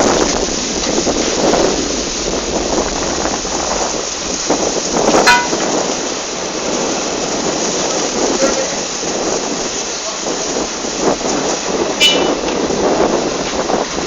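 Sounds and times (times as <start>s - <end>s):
heavy rain: 0.0s - 14.0s
strong wind: 0.0s - 14.0s.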